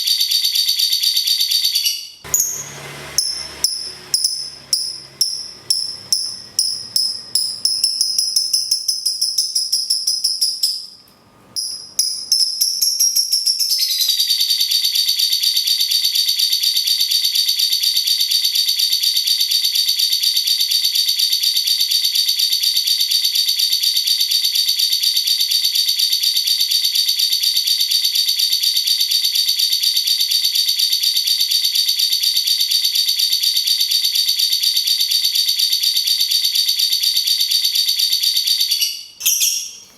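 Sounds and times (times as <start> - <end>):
sharp high bird chirps: 0.0 - 11.0, 11.6 - 15.1, 38.5 - 39.9
rapid high-pitched rattling trill: 0.1 - 10.9.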